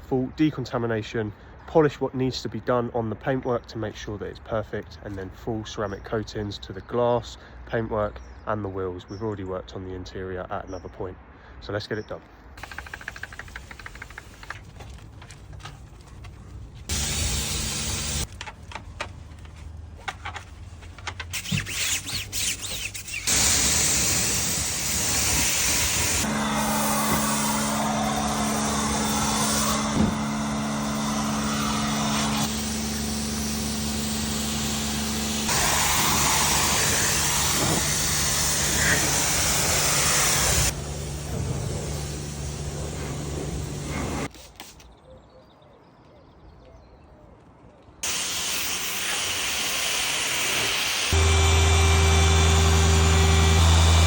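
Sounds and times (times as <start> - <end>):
hissing spray: 12.6 - 14.7, 16.9 - 18.3, 21.4 - 44.4, 48.0 - 54.0
power tools humming: 12.6 - 19.6, 20.8 - 44.3, 48.0 - 54.0.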